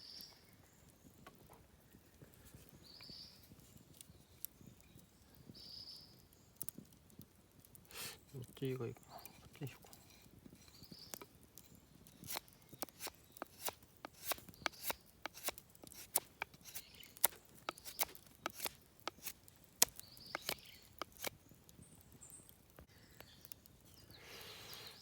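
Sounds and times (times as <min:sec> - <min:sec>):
knife shaving wood: 0:07.8 - 0:21.8.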